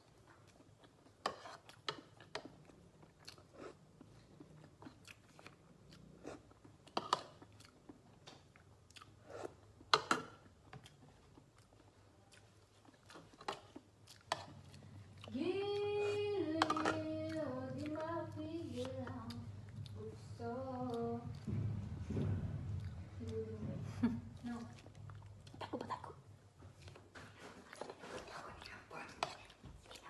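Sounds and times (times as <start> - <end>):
wet chewing: 0.0 - 15.9, 16.6 - 21.5, 24.4 - 30.0.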